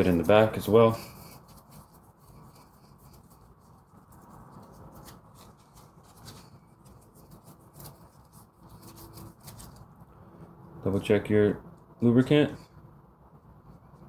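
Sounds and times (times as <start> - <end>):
faint rubbing: 0.0 - 10.6.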